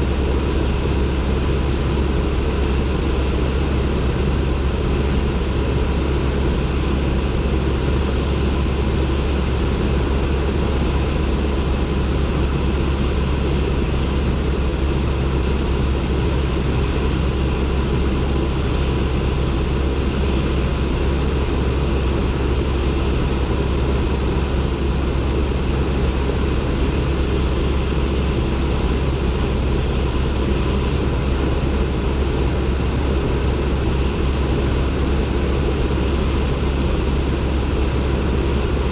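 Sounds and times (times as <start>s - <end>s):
propeller plane engine droning: 0.0s - 38.9s.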